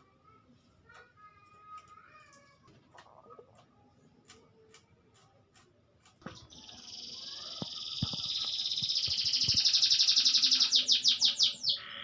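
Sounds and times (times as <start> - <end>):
canary singing trill: 6.3 - 12.0.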